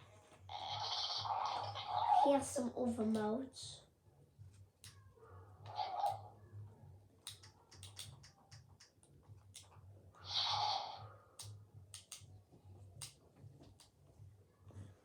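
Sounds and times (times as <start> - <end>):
toy plastic clicks: 7.2 - 8.9.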